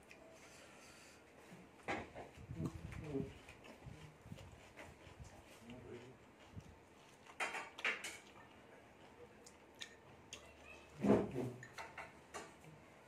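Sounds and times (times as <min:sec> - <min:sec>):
soft chewing: 0:00.0 - 0:11.0, 0:11.6 - 0:13.0
mouth clicks and lip smacks: 0:09.4 - 0:10.6.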